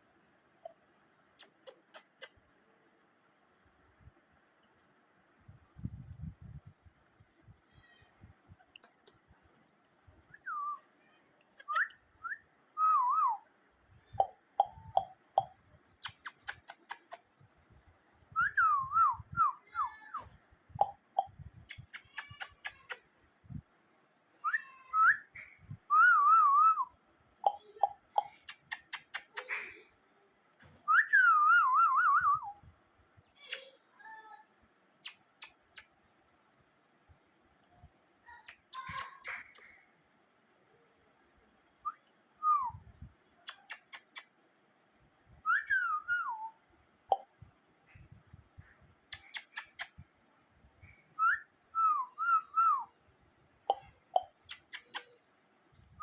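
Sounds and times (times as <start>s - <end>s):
sharp clicks: 49.1s - 50.0s.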